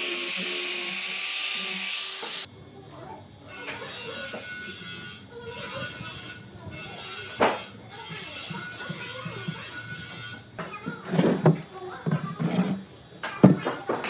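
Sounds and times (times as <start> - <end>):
power tool motor hissing: 0.0 - 2.5
workshop sounds: 0.0 - 2.5, 3.5 - 14.0.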